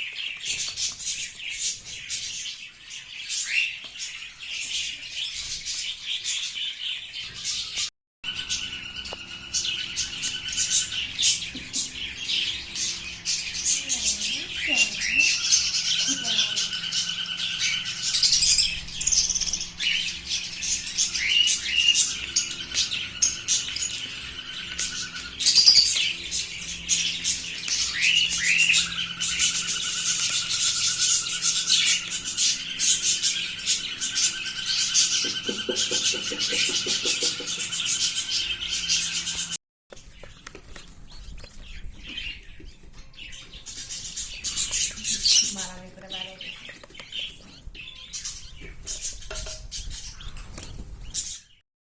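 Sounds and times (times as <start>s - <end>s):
budgerigars chirping and chattering: 0.0s - 51.6s.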